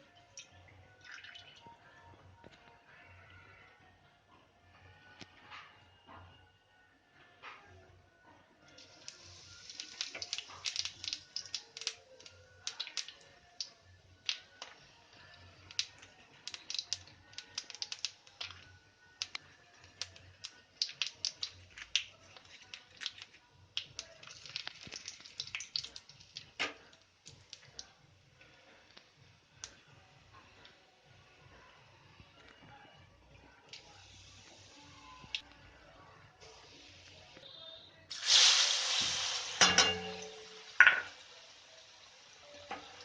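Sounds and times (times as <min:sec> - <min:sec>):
faint music: 0:00.0 - 0:43.0
kitchen utensils clicking and tapping: 0:39.6 - 0:41.1.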